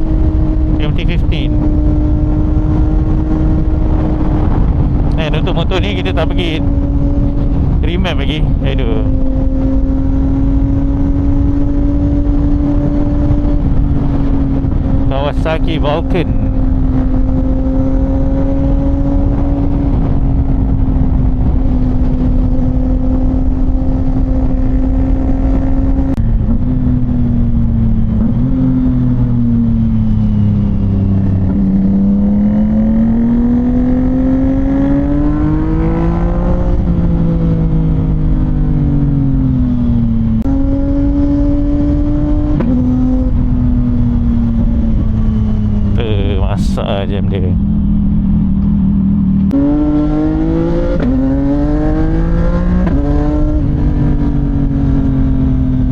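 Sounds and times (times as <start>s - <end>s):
motorcycle engine running: 8.4s - 46.0s.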